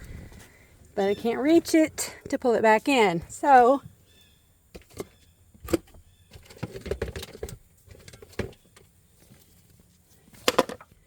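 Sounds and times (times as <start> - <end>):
objects clattering and shuffling: 4.7 - 11.0.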